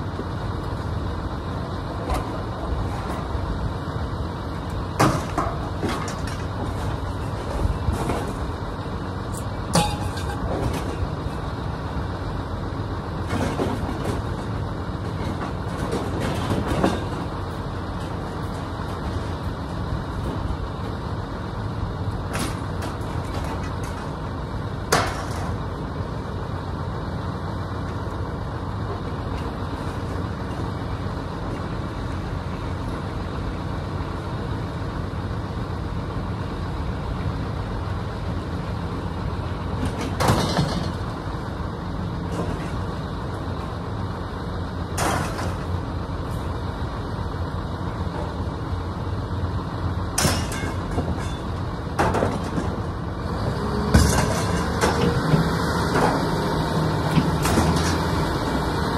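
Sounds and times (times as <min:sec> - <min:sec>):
vehicle engine rumbling: 0:00.0 - 0:58.9
sharp knocks and rattles: 0:39.8 - 0:41.2, 0:50.2 - 0:52.9.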